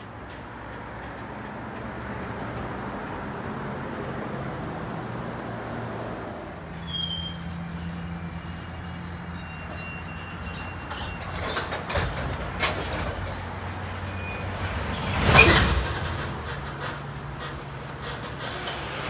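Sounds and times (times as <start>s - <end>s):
freight train rumble: 0.0s - 19.0s
faint high metallic squeal: 6.8s - 12.8s, 13.8s - 15.8s.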